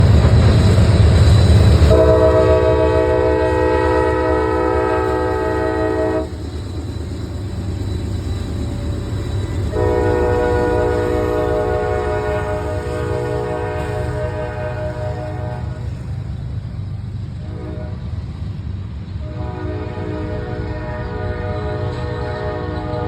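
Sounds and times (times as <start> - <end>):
low rumble of train: 0.0 - 23.0
locomotive air horn chord: 1.9 - 6.4, 9.7 - 16.0, 17.4 - 18.1, 19.2 - 23.0.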